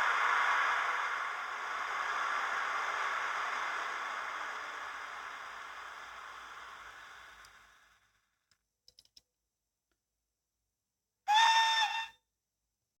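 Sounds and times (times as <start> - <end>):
model locomotive hissing: 0.0 - 8.2
small clicks: 8.5 - 9.3.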